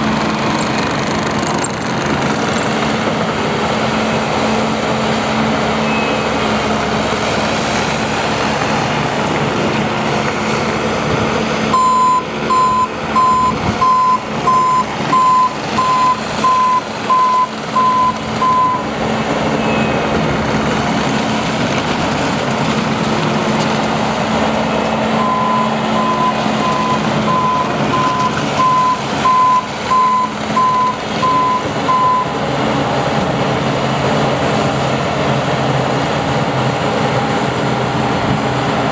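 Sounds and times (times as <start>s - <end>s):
diesel engine running: 0.0s - 38.9s
reverse alarm beeping: 5.8s - 6.3s, 11.7s - 18.9s, 19.6s - 20.1s, 25.2s - 32.3s.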